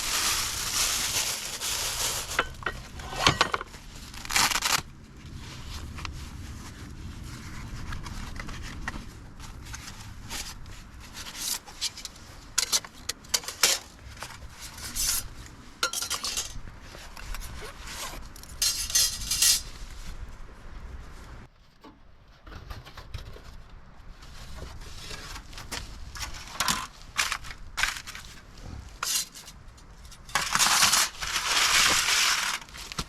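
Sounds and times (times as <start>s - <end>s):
metal cookware clinking: 15.8s - 16.6s.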